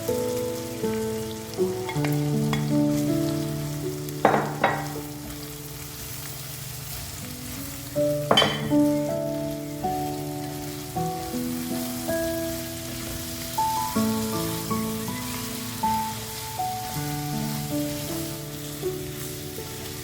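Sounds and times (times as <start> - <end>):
keyboard background music: 0.0 - 5.5
food frying in oil: 0.0 - 20.0.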